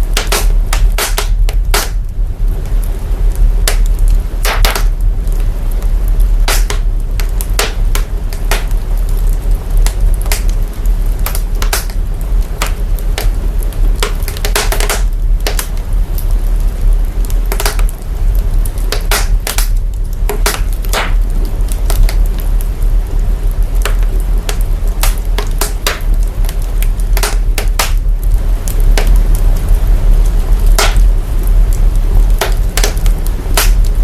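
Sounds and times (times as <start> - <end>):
low sub-bass rumble: 0.0 - 34.0
wood fire crackling: 0.0 - 34.0.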